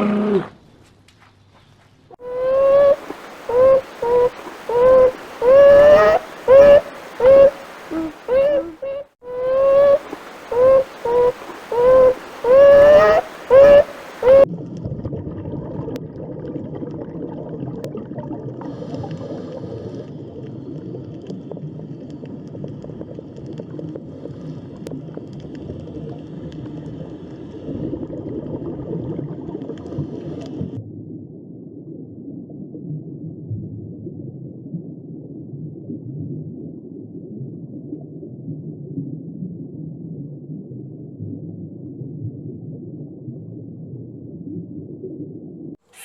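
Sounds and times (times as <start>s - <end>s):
animal giving short pitched calls: 2.2s - 14.5s.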